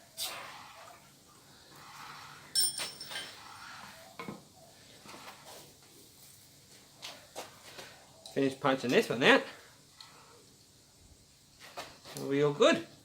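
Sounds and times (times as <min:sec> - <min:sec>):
steel clanking on anvil: 0:02.6 - 0:03.4.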